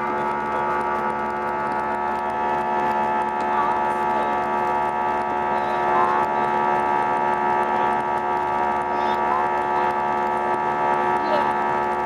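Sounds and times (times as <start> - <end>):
jet engines droning in cabin: 0.0 - 12.0.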